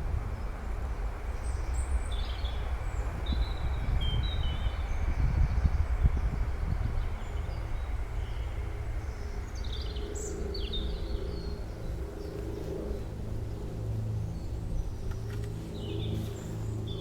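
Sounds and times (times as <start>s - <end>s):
songbirds chirping and trilling: 7.0s - 17.0s.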